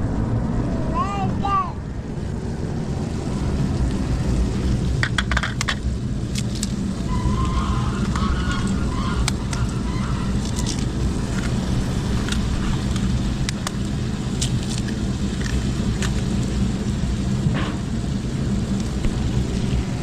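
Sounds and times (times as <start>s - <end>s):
low machine drone: 0.0s - 20.0s
sharp clicks and knocks: 5.0s - 6.8s.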